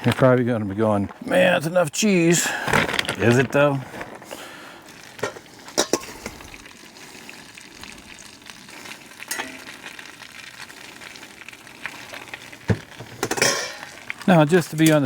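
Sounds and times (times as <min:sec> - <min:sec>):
food sizzling in skillet: 0:04.8 - 0:15.0.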